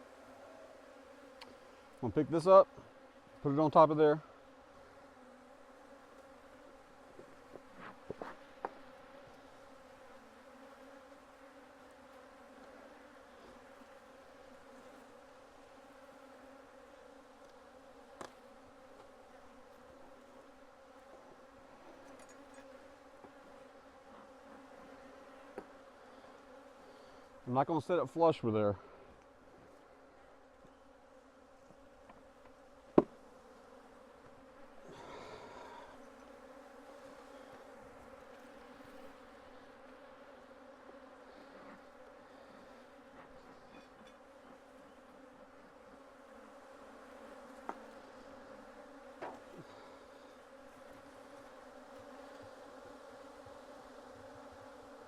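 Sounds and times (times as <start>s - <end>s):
honeybees buzzing: 0.0s - 55.0s
sharp knocks on hive: 7.1s - 8.8s, 32.9s - 33.2s, 47.6s - 47.9s, 49.2s - 49.5s.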